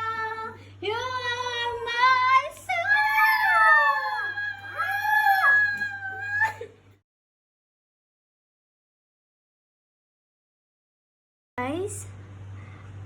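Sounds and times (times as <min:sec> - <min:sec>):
woman singing: 0:00.0 - 0:05.0
dog howling: 0:02.7 - 0:06.7.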